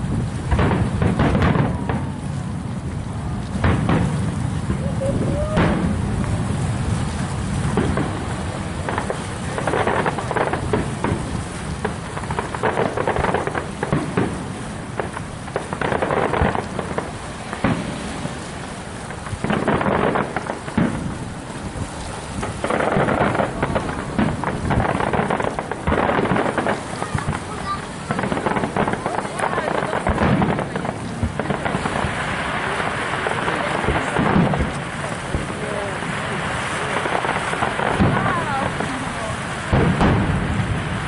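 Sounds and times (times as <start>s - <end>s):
fireworks booming: 0.0s - 41.0s
fireworks crackling: 0.0s - 41.0s.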